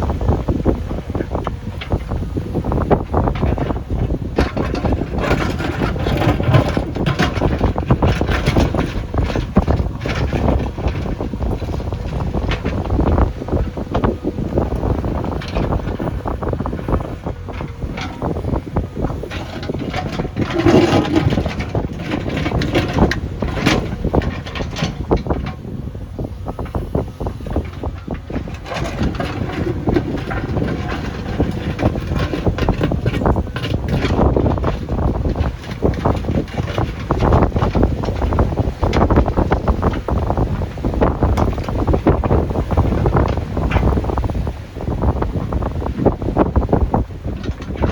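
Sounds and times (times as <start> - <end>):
diesel engine rumble: 0.0 - 47.9
machine clanks and rattles: 0.2 - 25.8, 26.5 - 47.9
machine clatter: 27.6 - 44.3.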